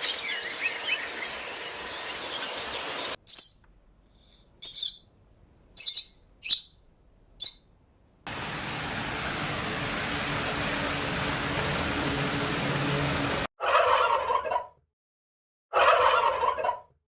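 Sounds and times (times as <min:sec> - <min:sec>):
steady rushing noise: 0:08.3 - 0:13.5
turkey gobbling: 0:13.6 - 0:14.7, 0:15.7 - 0:16.9.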